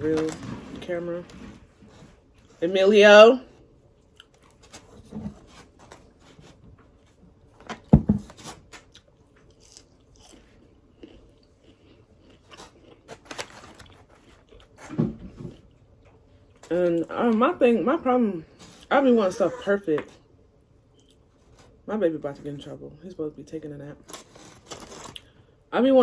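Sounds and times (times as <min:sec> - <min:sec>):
crunchy chewing: 0:08.7 - 0:14.8.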